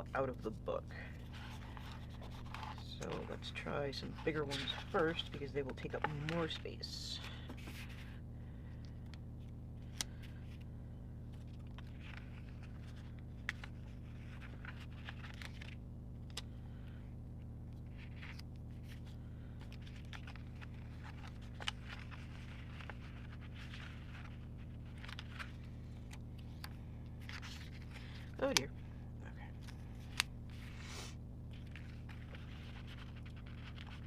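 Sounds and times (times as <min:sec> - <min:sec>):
low hum: 0:00.0 - 0:34.0
paper rustling and peeling: 0:01.1 - 0:08.2, 0:11.3 - 0:16.9, 0:17.8 - 0:28.8, 0:31.5 - 0:34.0.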